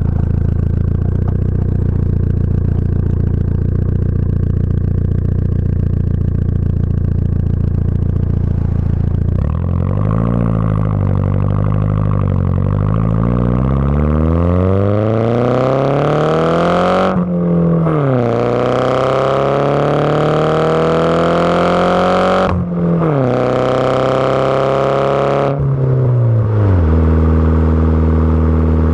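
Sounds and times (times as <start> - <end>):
engine low drone: 0.0 - 28.9
car engine accelerating hard: 6.4 - 28.9.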